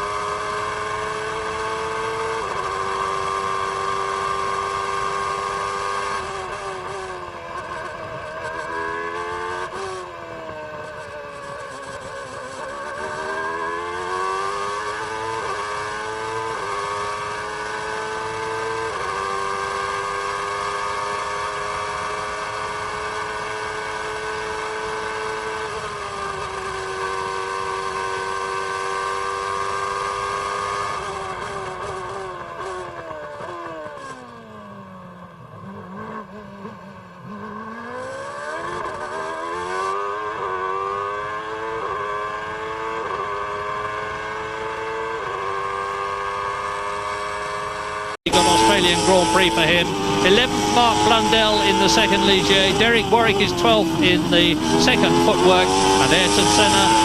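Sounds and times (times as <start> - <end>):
racing car engine shifting gears: 35.6 - 57.0.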